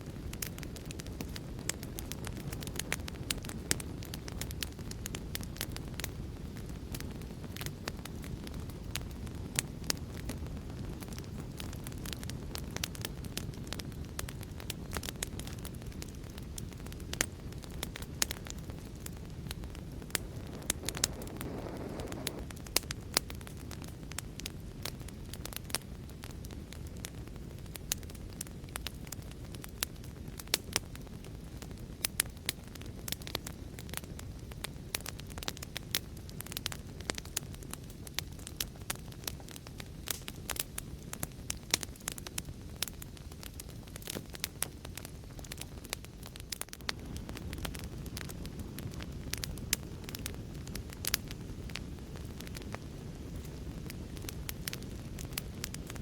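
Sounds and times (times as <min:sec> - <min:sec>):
fire crackling with pops: 0:00.0 - 0:56.0
low fire rumble: 0:00.0 - 0:56.0
soft hiss: 0:18.8 - 0:22.8.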